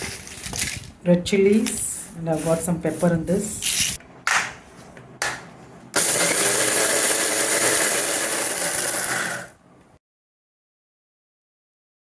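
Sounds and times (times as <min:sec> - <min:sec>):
mixer grinder grinding: 0:06.0 - 0:09.6.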